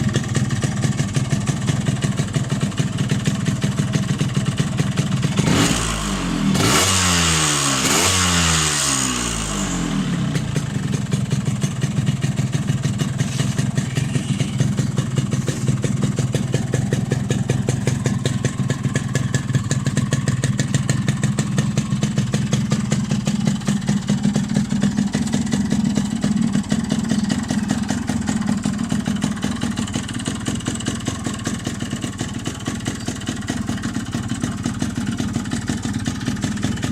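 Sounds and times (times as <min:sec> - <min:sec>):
motorcycle engine revving and idling: 0:00.0 - 0:36.9.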